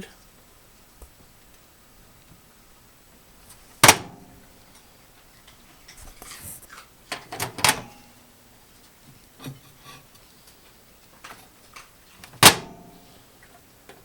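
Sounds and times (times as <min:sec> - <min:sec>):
microwave door and latch clicks: 0:03.8 - 0:04.4, 0:07.1 - 0:08.0, 0:12.2 - 0:12.9.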